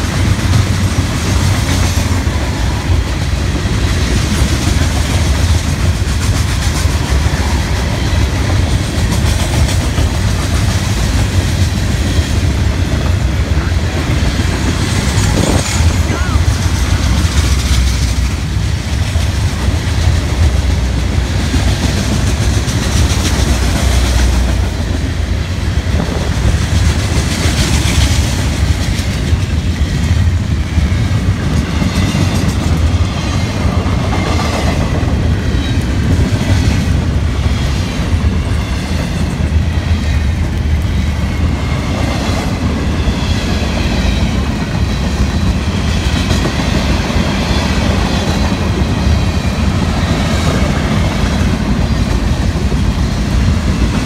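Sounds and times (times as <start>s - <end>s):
freight train rumbling: 0.0s - 54.0s
locomotive passing: 0.0s - 54.0s
wheels clickety-clack over rail joints: 0.0s - 54.0s.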